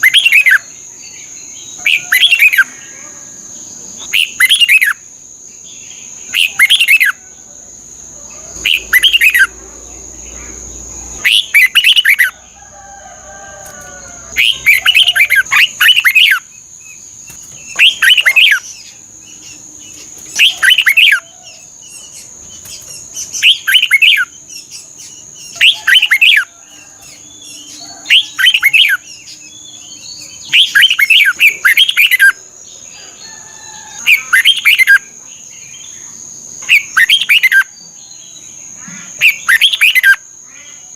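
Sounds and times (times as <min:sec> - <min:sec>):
bird singing warbling whistles: 0:00.0 - 0:00.7, 0:04.0 - 0:05.0, 0:08.7 - 0:09.5, 0:11.2 - 0:12.3, 0:17.7 - 0:18.8, 0:20.4 - 0:21.3, 0:23.3 - 0:24.4, 0:25.4 - 0:26.5, 0:28.0 - 0:29.2, 0:30.4 - 0:32.4, 0:36.7 - 0:37.7, 0:39.2 - 0:40.2.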